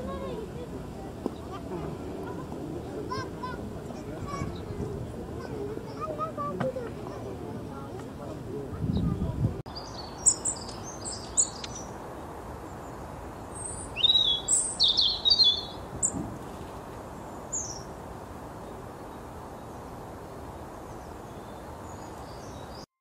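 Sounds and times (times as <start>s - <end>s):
outdoor background noise: 0.0s - 22.9s
small bird chirping: 8.9s - 16.8s.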